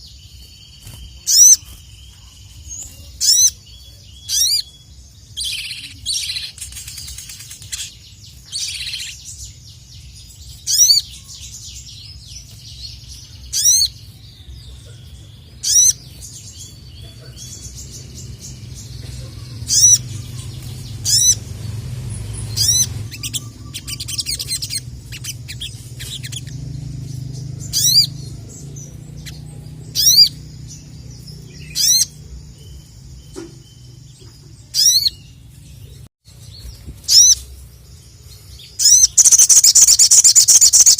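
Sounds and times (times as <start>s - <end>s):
songbird high chirps: 0.0s - 40.9s.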